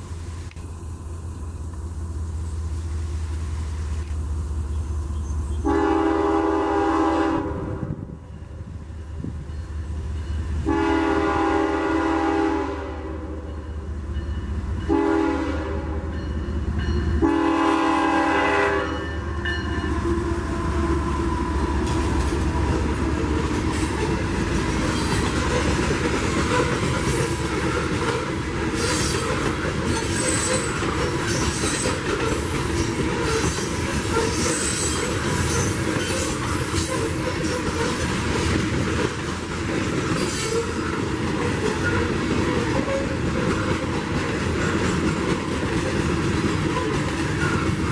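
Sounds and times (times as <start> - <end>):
train rumbling past: 0.0 - 47.9
locomotive horn blowing: 5.6 - 8.0, 10.6 - 13.5, 14.8 - 16.2, 17.2 - 21.0
high-pitched wheel squeal: 28.4 - 38.2.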